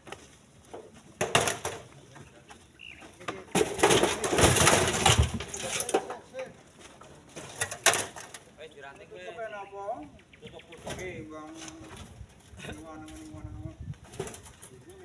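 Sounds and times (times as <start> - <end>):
tumble of rocks: 3.2 - 6.2.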